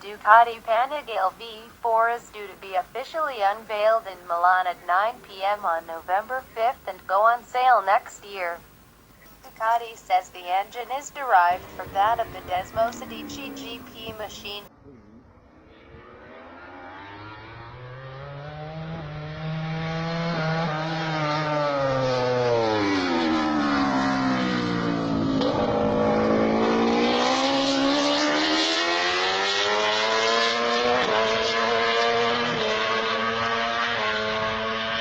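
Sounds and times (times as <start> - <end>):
motorcycle engine revving: 15.7 - 35.0.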